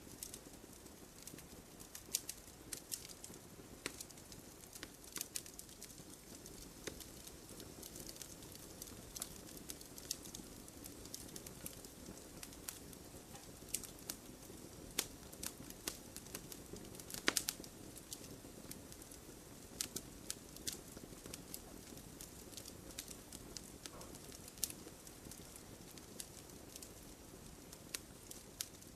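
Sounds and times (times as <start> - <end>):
bonfire pops and snaps: 0.0 - 28.9
hiss of burning: 0.0 - 28.9.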